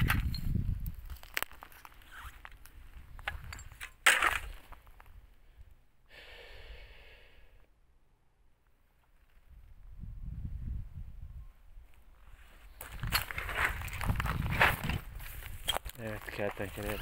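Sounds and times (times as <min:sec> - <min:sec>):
scraping rustle: 0:12.3 - 0:17.0
loud clatter and rustle: 0:12.8 - 0:17.0.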